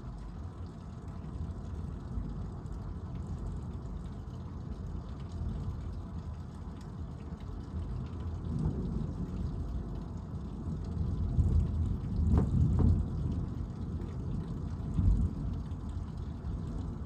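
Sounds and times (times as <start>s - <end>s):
low rolling thunder: 8.4s - 17.0s.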